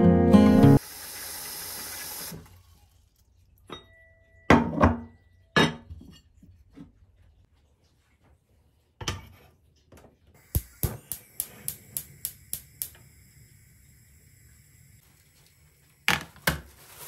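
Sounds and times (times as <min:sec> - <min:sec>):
guitar music: 0:00.0 - 0:00.8
dishes clinking: 0:03.6 - 0:06.5
steady hiss: 0:10.4 - 0:15.6.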